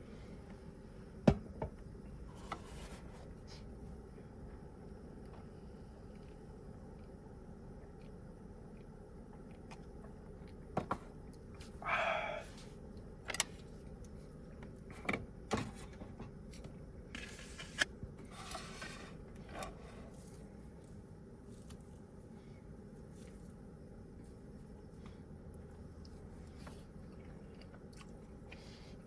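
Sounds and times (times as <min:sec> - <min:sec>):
rustling and scraping: 0:02.3 - 0:03.7, 0:15.6 - 0:22.0.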